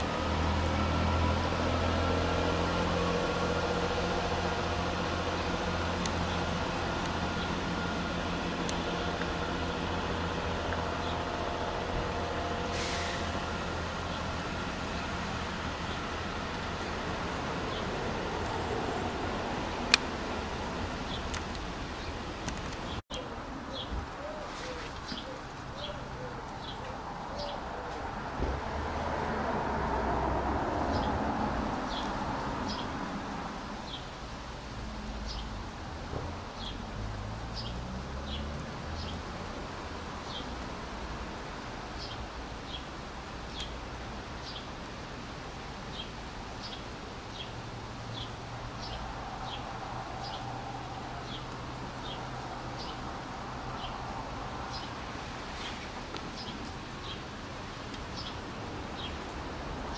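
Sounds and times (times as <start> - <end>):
train engines humming: 0.0 - 23.8.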